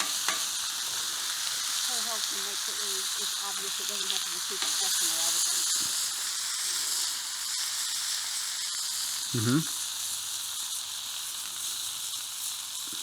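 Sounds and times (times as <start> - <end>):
bacon sizzling on a griddle: 0.0 - 13.0
person speaking briefly: 9.4 - 9.7.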